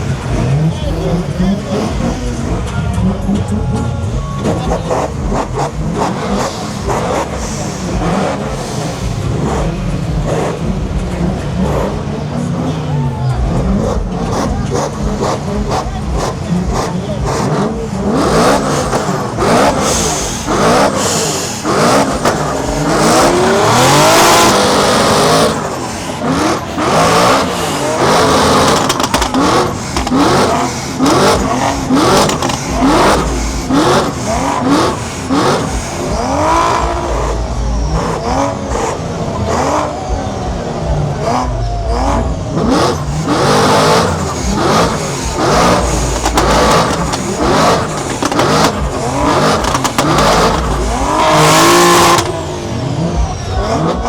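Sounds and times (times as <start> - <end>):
car engine revving hard: 0.0 - 54.0
harsh rush of noise: 0.0 - 54.0.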